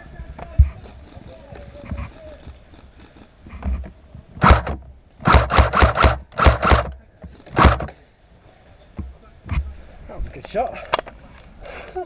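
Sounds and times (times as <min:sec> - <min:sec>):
airsoft rifle firing single shots: 0:04.4 - 0:07.0, 0:07.6 - 0:07.9.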